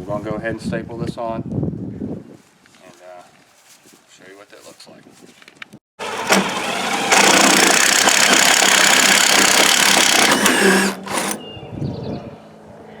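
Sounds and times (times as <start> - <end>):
power drill boring into wood: 6.0 - 11.4.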